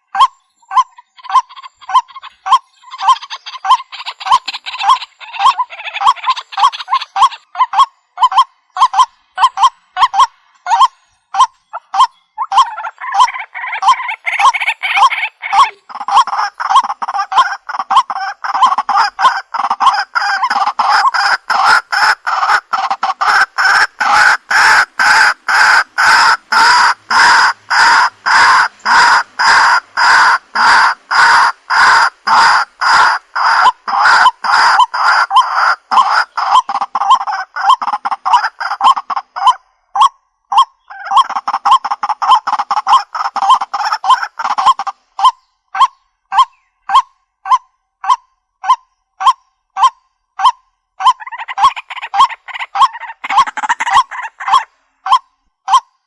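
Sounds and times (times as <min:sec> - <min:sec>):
bird clucks: 0:00.0 - 0:56.0
bird honking calls: 0:08.2 - 0:39.6.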